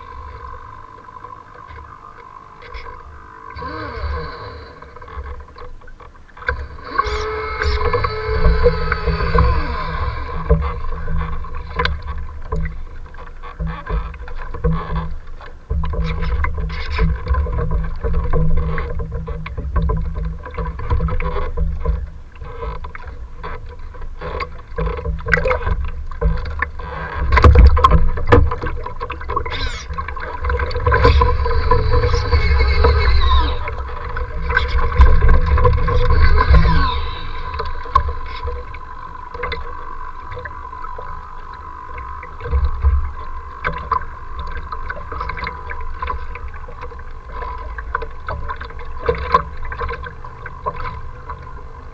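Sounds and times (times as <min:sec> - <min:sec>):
sliding whining tones: 0:00.0 - 0:51.9
waves splashing: 0:26.8 - 0:51.9.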